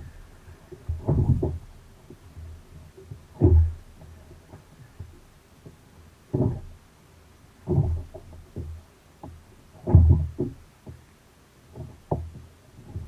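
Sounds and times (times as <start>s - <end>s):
dull knocks on a kayak: 0.7s - 2.2s, 3.1s - 3.8s, 4.5s - 6.8s, 7.6s - 11.0s, 11.8s - 13.0s.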